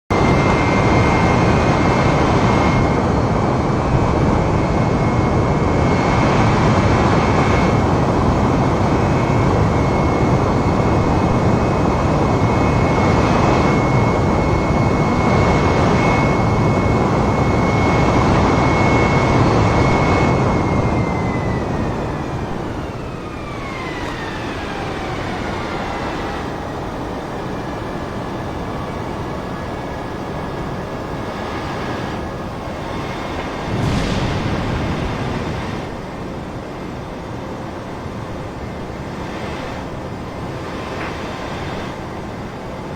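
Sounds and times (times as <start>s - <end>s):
jet engines whining: 0.1s - 42.9s
rushing air: 6.4s - 18.5s, 30.7s - 36.6s.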